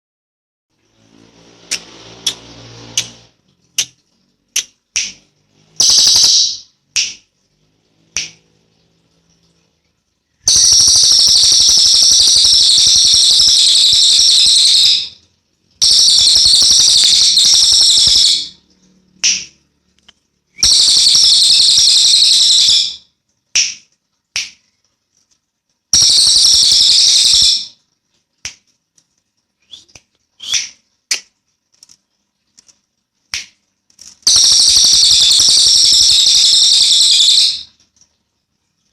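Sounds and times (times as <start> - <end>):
bird high-pitched trills: 26.0 - 27.8.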